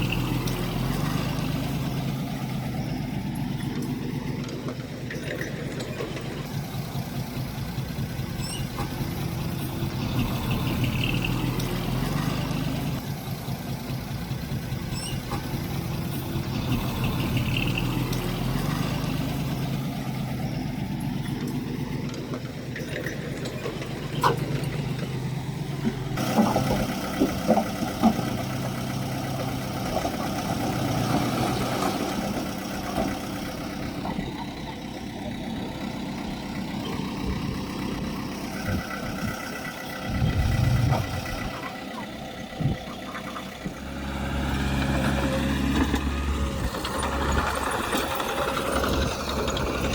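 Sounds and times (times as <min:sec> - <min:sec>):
heavy machinery diesel engine running: 0:00.0 - 0:49.9.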